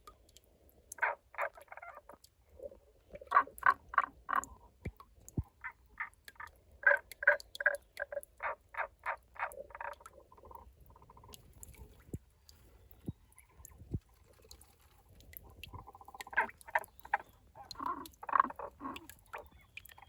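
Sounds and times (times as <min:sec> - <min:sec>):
frog clucking croaks: 0:00.9 - 0:12.2, 0:15.3 - 0:20.0.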